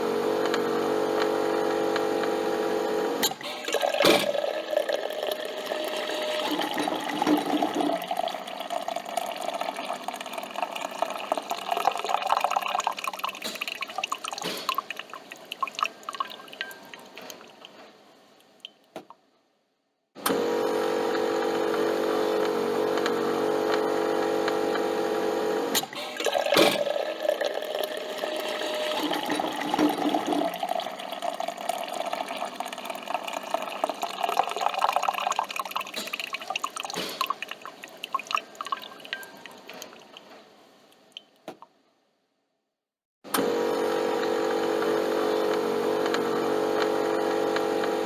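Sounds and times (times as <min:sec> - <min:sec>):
coffee machine humming: 0:00.0 - 0:13.9, 0:20.2 - 0:37.0, 0:43.3 - 0:48.0
liquid dripping into a cup: 0:03.7 - 0:17.8, 0:26.2 - 0:40.3.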